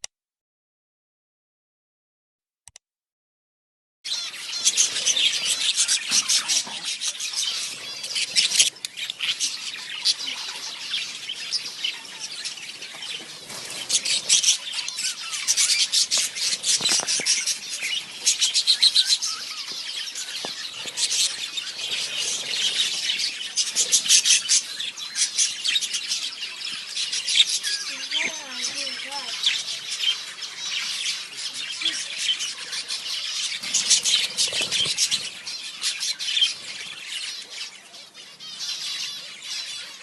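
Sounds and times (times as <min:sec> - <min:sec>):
parrots chattering and chirping: 0:04.1 - 0:40.0.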